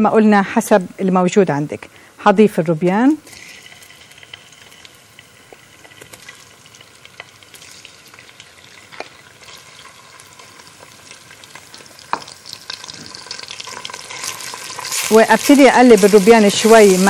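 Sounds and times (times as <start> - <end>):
shrimp sizzling in hot oil: 2.7 - 17.0.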